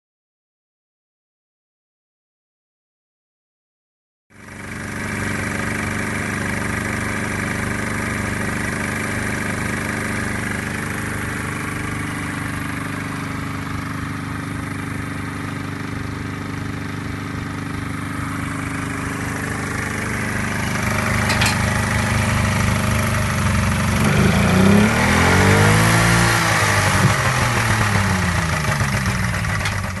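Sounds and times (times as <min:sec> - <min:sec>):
two-stroke engine idling: 0:04.4 - 0:30.0
engine revving: 0:17.8 - 0:30.0.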